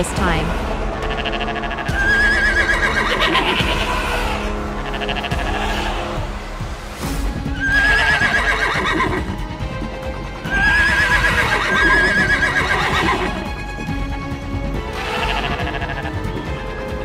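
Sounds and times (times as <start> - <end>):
background music: 0.0 - 17.0
horse whinnying: 1.0 - 6.1, 7.6 - 9.3, 10.4 - 13.5, 14.8 - 16.2.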